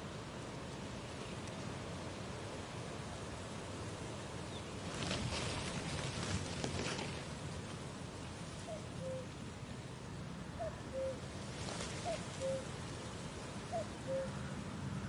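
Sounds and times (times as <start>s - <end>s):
soft background hiss: 0.0s - 15.0s.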